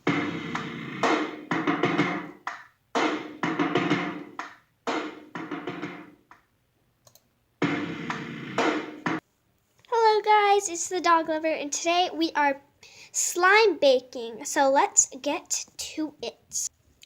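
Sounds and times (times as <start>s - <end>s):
drums and percussion music: 0.0s - 6.3s, 7.6s - 9.2s.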